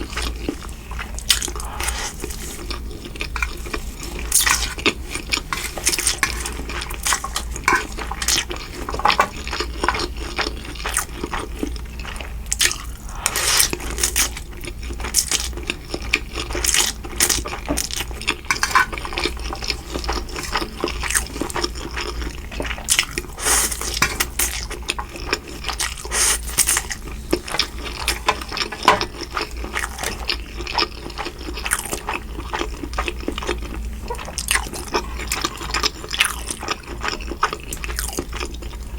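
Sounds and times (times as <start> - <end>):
eating sounds: 0.0 - 38.9
utensils clinking on dish: 3.4 - 10.2, 17.7 - 21.6, 23.4 - 25.4.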